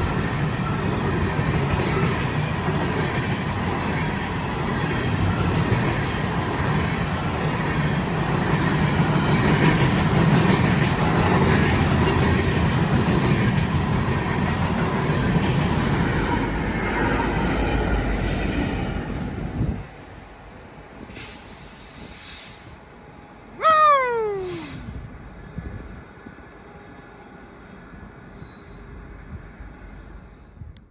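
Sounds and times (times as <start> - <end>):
train wheels rumbling on rail: 0.0 - 22.8
tone falling steeply in pitch: 23.6 - 24.8.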